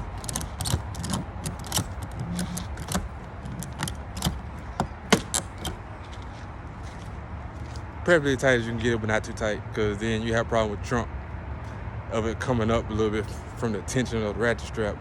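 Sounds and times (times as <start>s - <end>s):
ratchet strap clicking: 0.0s - 6.0s.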